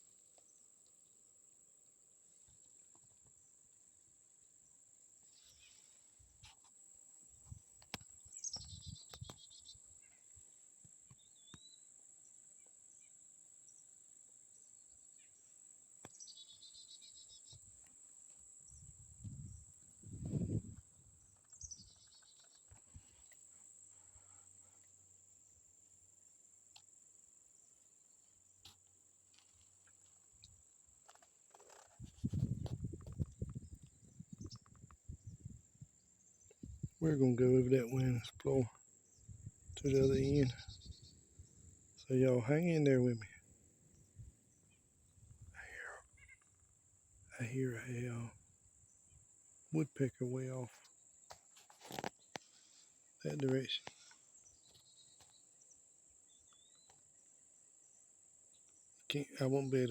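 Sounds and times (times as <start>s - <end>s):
birds chirping: 18.6s - 24.9s, 36.1s - 44.9s, 52.2s - 55.5s.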